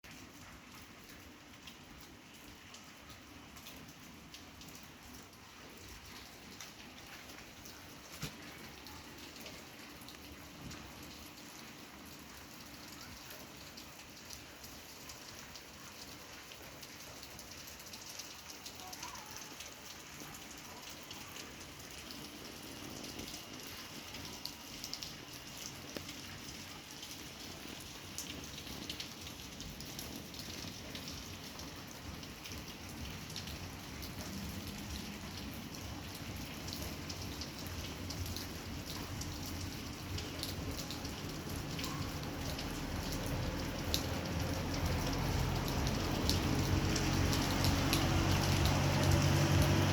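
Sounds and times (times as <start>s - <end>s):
steady rain falling: 0.0s - 49.9s.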